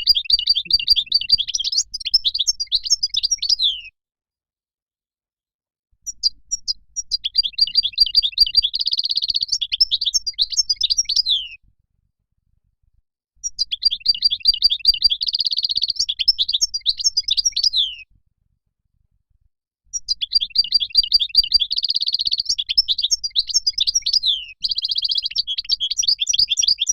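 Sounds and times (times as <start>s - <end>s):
bird twittering song: 0.0s - 3.9s, 6.0s - 11.6s, 13.4s - 18.1s, 19.9s - 26.9s.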